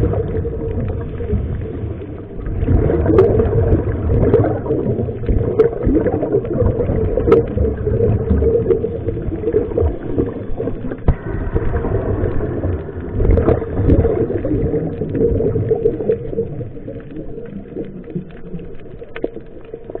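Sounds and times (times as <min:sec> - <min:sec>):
underwater rumble and bubbling: 0:00.0 - 0:20.0
small clicks: 0:12.7 - 0:20.0.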